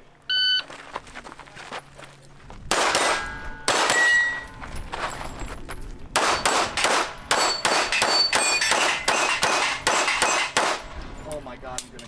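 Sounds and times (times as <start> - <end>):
pistol shots: 2.7 - 4.6, 6.2 - 11.2
steel plates ringing: 3.0 - 5.5, 6.2 - 12.0.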